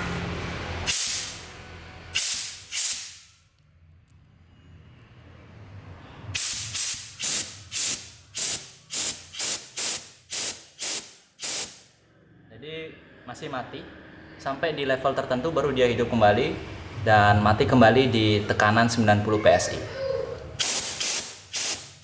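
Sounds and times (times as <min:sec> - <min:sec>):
compressed air hissing bursts: 0:00.8 - 0:01.5, 0:02.2 - 0:03.4, 0:06.3 - 0:11.9, 0:20.6 - 0:22.0.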